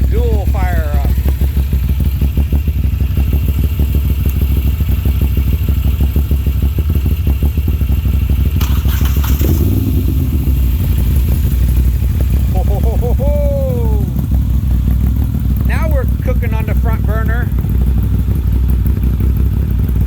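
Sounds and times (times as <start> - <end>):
motorcycle engine idling: 0.0 - 20.0
second motorcycle engine cranking: 8.5 - 11.5.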